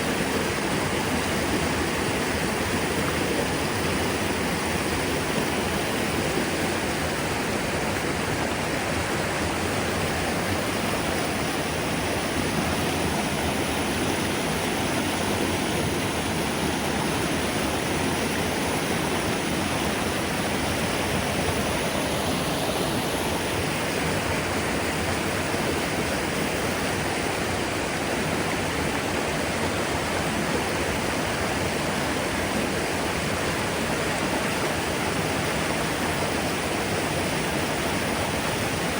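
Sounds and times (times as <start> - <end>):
river rapids rushing: 0.0 - 38.9.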